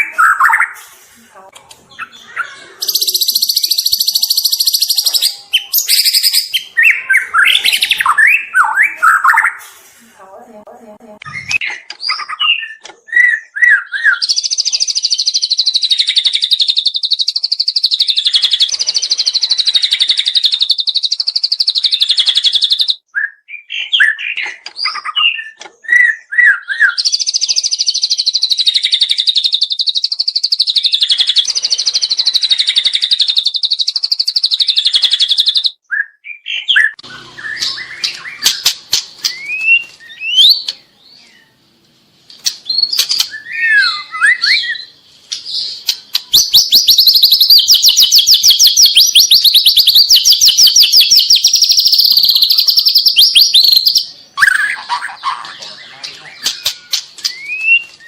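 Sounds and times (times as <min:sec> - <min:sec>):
bird singing: 0:00.0 - 0:00.8, 0:01.8 - 0:09.6, 0:11.2 - 0:41.8, 0:42.4 - 0:58.0.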